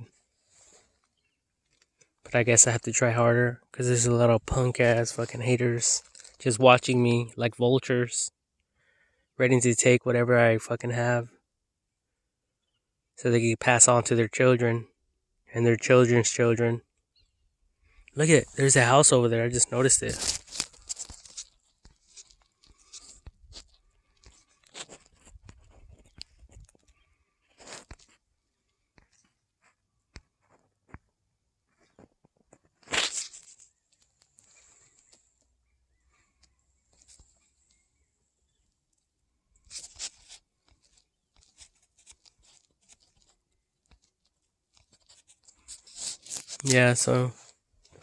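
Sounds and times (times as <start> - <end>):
faint crunches and clicks: 0.5 - 2.9, 4.0 - 6.5, 17.9 - 48.0
soft rustles: 6.0 - 6.4, 19.6 - 31.0, 39.6 - 48.0.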